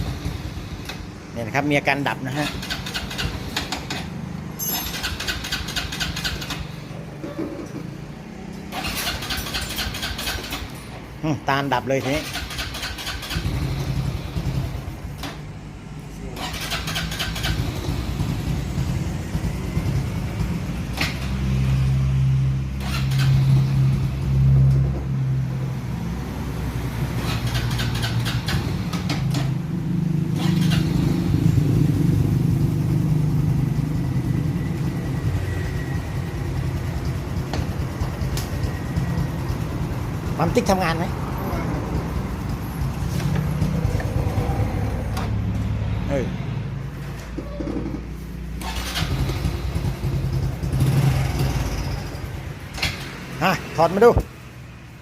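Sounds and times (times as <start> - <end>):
motorcycle engine running: 12.2 - 15.2, 16.2 - 21.4, 26.8 - 45.6, 48.6 - 52.7.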